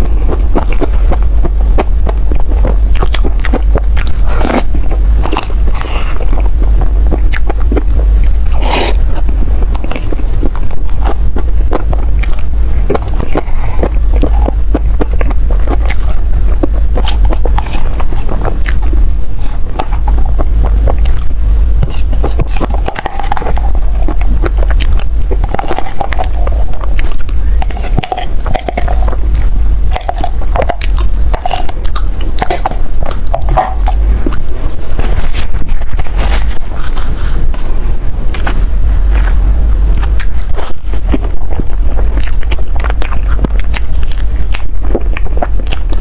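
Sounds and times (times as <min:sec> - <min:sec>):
biting and chewing: 0:00.0 - 0:46.0
constant low rumble: 0:00.0 - 0:46.0.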